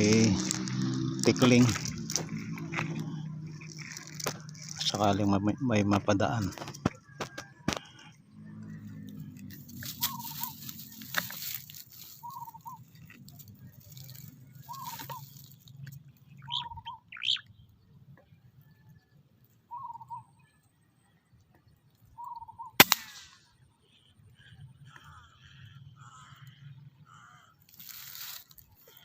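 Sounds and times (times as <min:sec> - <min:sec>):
bird calling: 0:00.0 - 0:20.8, 0:22.0 - 0:29.0
higher bird chirps: 0:07.9 - 0:13.2, 0:13.9 - 0:18.0, 0:19.6 - 0:20.9, 0:22.0 - 0:22.8
sharp crack: 0:22.8 - 0:23.5.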